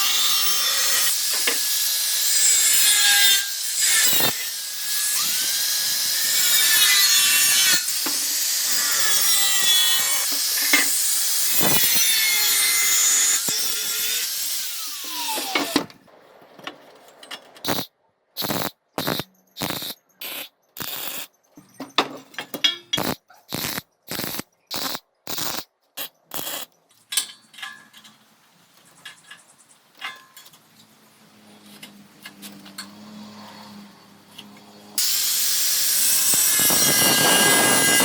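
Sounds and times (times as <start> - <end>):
power tool winding down: 11.6 - 15.8, 35.0 - 38.0.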